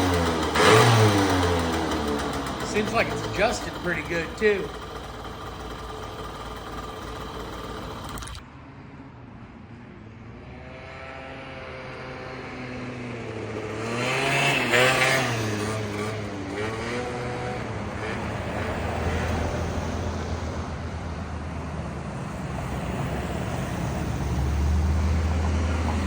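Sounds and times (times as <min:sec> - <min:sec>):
two-stroke moped engine revving: 0:00.0 - 0:08.4, 0:13.6 - 0:20.9, 0:22.6 - 0:26.0.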